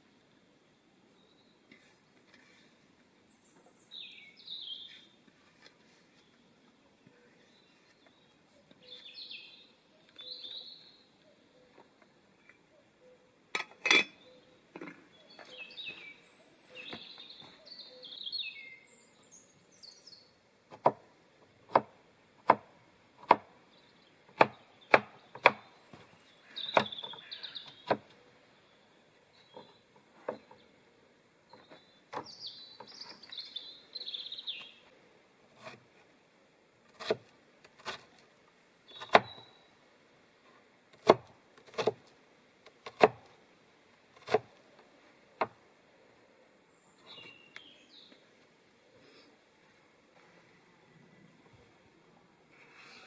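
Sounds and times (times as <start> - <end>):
small birds chirping: 1.1 - 13.4, 14.0 - 20.4, 23.2 - 35.0, 38.7 - 39.8, 46.1 - 51.9.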